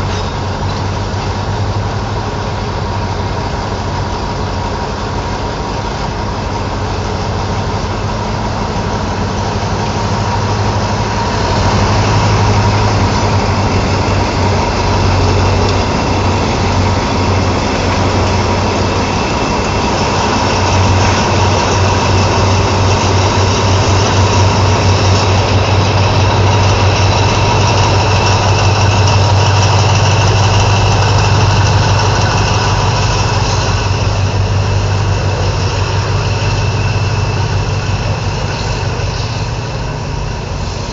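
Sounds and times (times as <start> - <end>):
diesel engine idling: 0.0 - 40.9
steady whine: 0.0 - 40.9.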